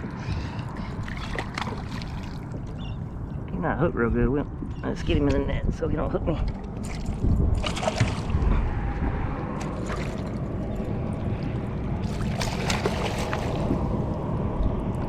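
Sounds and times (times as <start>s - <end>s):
water sloshing around kayak: 0.0s - 3.3s, 6.7s - 8.6s, 9.5s - 14.3s.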